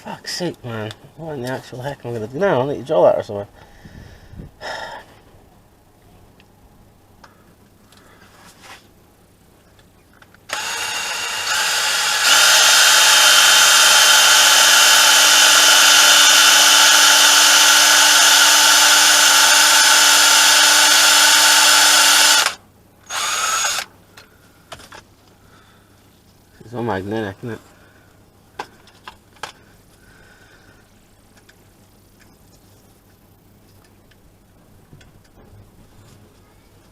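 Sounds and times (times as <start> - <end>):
electric drill running under load: 10.5 - 23.9.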